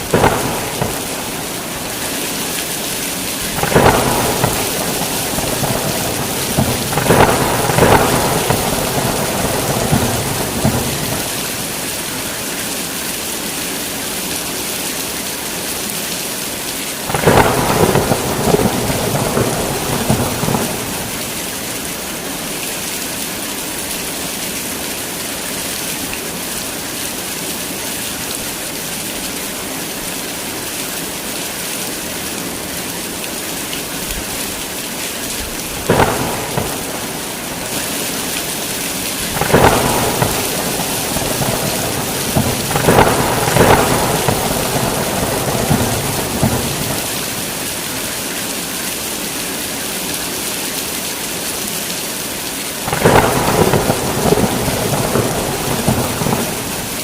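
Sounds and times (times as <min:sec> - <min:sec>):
thunder rumbling: 0:00.0 - 0:12.2, 0:17.1 - 0:21.6, 0:35.4 - 0:47.6, 0:52.9 - 0:57.0
heavy rain pouring: 0:00.0 - 0:57.0.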